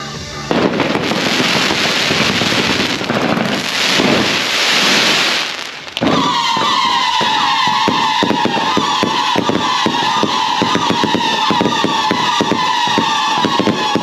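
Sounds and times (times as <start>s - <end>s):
music with held tone: 0.0s - 2.4s
firecrackers crackling: 0.5s - 14.0s.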